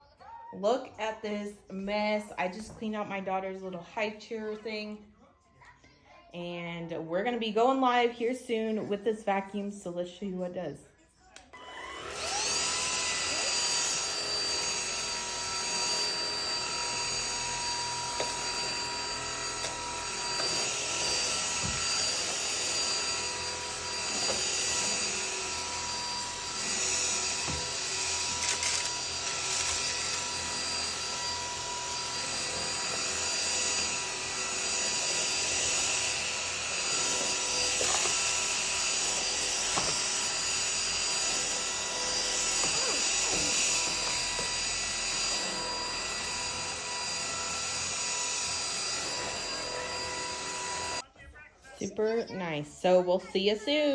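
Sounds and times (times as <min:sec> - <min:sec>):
vacuum motor whining: 0:11.6 - 0:51.0.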